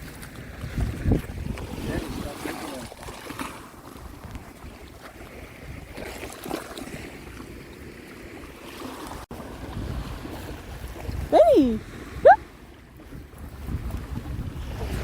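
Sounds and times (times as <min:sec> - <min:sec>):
waves washing on shoreline: 0:00.0 - 0:15.0
wind rumbling on microphone: 0:00.0 - 0:15.0.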